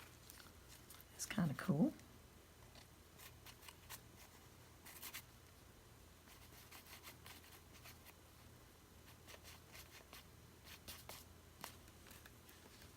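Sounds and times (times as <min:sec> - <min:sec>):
scratchy strokes on paper: 0:03.2 - 0:05.3, 0:06.3 - 0:08.2, 0:09.0 - 0:11.8.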